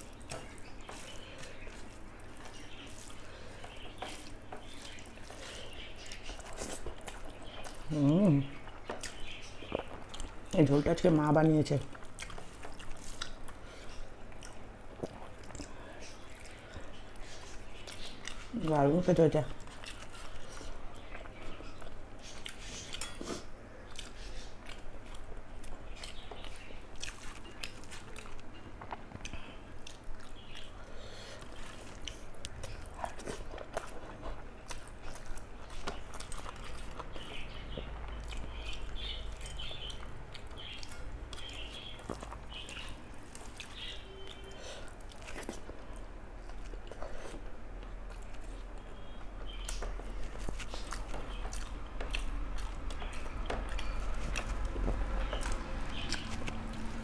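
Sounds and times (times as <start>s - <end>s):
wet chewing and mouth smacks: 0.0s - 10.5s, 11.8s - 18.6s, 19.6s - 57.0s.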